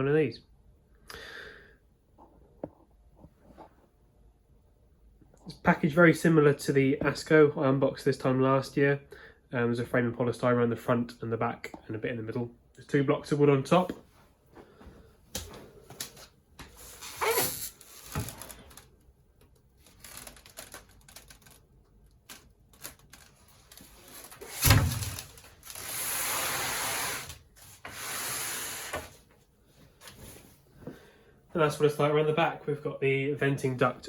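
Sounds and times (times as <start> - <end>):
packing material scraping: 16.7 - 19.0, 19.8 - 29.1.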